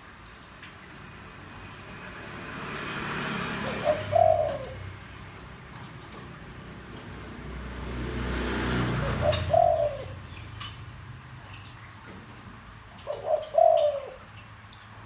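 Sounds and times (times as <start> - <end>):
dove cooing: 3.4 - 5.4, 8.3 - 10.5, 13.0 - 14.3.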